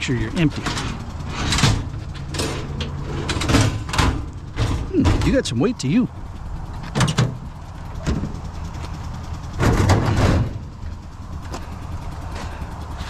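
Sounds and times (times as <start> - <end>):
metal cabinet rattling: 0.4 - 5.5, 9.6 - 10.7
metal file cabinet clanking: 0.4 - 5.6, 6.9 - 8.4, 9.6 - 10.7.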